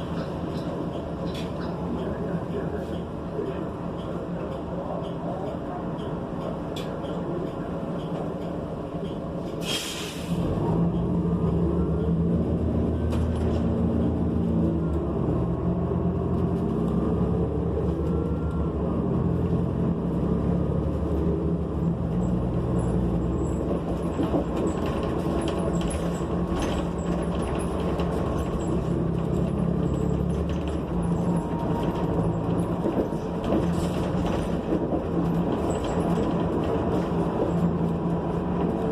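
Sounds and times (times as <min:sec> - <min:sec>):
bus engine accelerating: 0:00.0 - 0:38.9
air brake hiss: 0:09.6 - 0:10.4.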